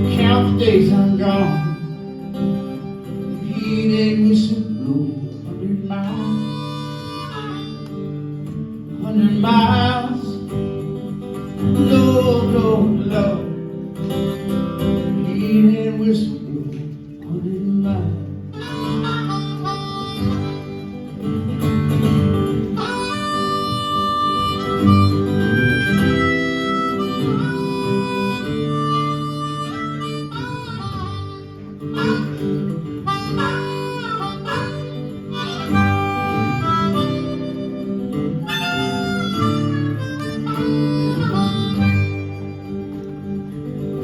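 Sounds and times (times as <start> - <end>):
harmonica solo: 0.0 - 16.5, 18.0 - 44.0
acoustic guitar accompaniment: 0.0 - 44.0.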